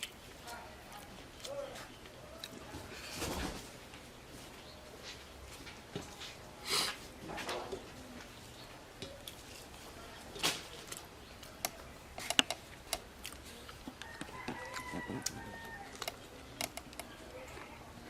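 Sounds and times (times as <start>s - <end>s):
chewing and mouth smacks: 10.8s - 17.1s.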